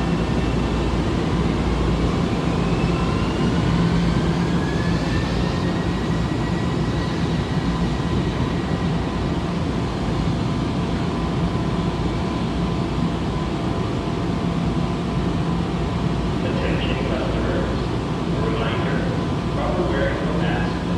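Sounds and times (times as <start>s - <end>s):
electric train rumble and hum: 0.0s - 20.9s.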